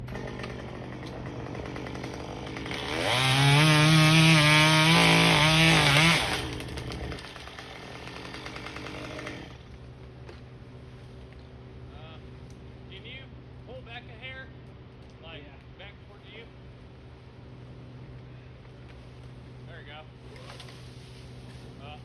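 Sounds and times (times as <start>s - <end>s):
chainsaw revving: 0.0s - 9.7s.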